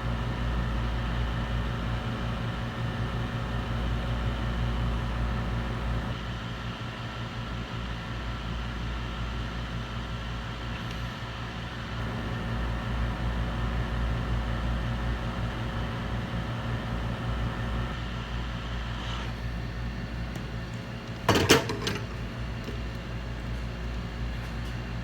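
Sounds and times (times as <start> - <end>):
low mains buzz: 0.0 - 6.2, 11.8 - 25.0
electric fan humming: 12.0 - 25.0.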